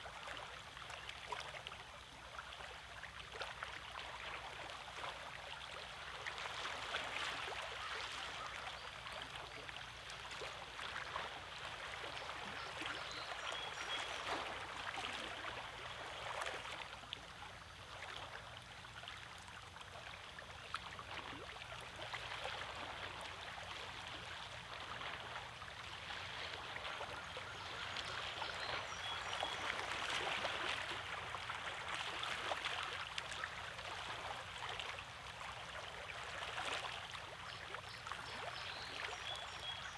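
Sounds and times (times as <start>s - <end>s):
waves lapping against rocks: 19.1s - 39.9s.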